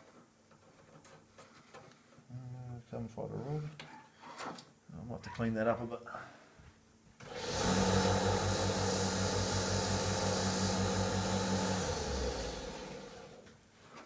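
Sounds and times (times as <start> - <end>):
small electric motor humming: 7.3 - 13.4.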